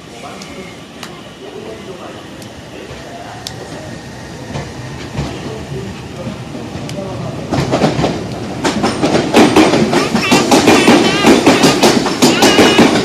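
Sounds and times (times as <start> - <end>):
electric train running: 0.0 - 13.0
wheels clacking over rail joints: 6.2 - 13.0.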